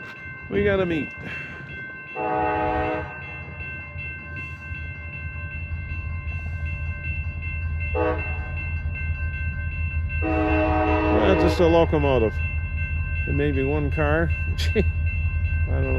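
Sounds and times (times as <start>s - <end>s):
crossing bell ringing: 0.0s - 15.9s
locomotive engine rumble: 0.0s - 15.9s
locomotive horn blasts: 2.2s - 3.1s, 8.0s - 8.5s, 10.2s - 11.7s.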